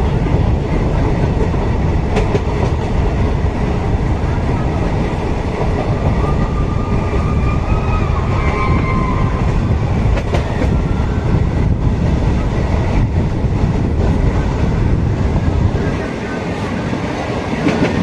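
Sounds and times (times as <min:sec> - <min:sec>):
train coaches rumbling past: 0:00.0 - 0:18.0
high wheel squeal: 0:06.1 - 0:09.6.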